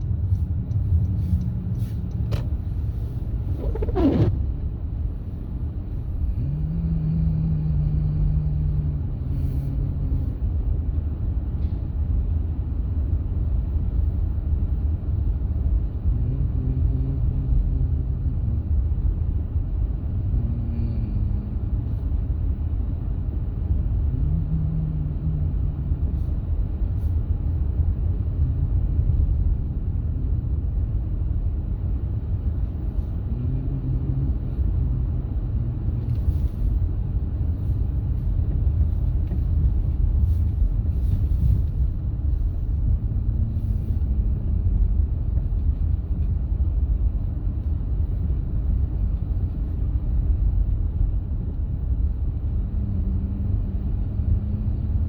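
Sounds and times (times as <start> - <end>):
road vehicle rumble: 0.0 - 55.0.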